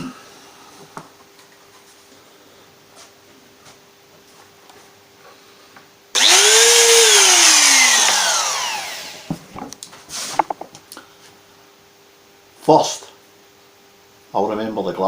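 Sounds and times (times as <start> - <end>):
wood router spinning down: 6.2 - 9.4.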